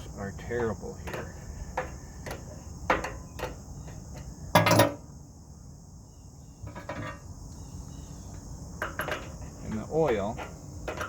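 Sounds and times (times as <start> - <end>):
crickets chirping: 0.0 - 11.0
metal tools clanking: 0.5 - 3.6, 8.8 - 11.0.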